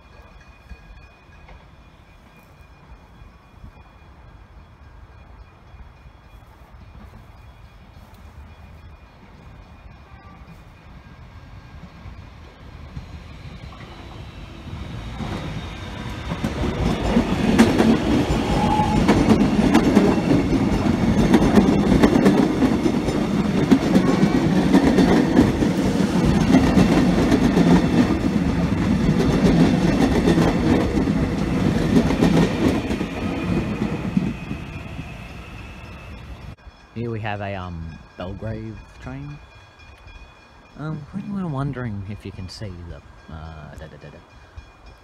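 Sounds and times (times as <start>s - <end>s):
electric train passing: 0.0s - 45.0s
wheels clicking over rail joints: 15.0s - 35.1s.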